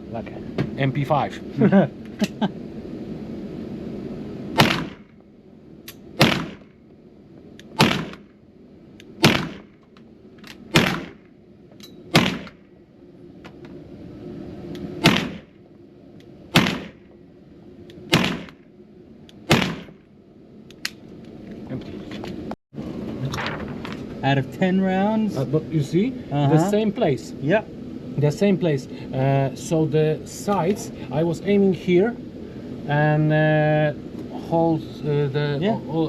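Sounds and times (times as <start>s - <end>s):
indoor gunshots: 4.6s - 5.2s, 6.2s - 6.8s, 7.8s - 8.3s, 9.2s - 9.8s, 10.7s - 11.3s, 12.1s - 12.6s, 15.0s - 15.5s, 16.5s - 17.0s, 18.1s - 18.6s, 19.5s - 20.0s.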